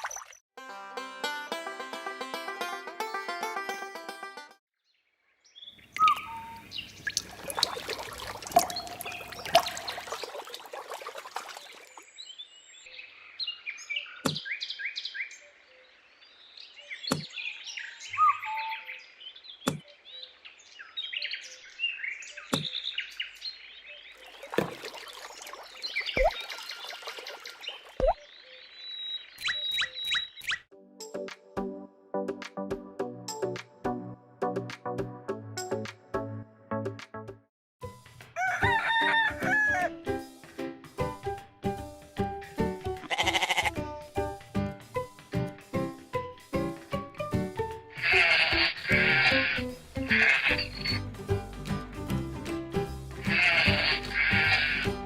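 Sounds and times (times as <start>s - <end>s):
small birds chirping: 4.9s - 7.8s, 11.6s - 30.7s, 49.7s - 51.1s.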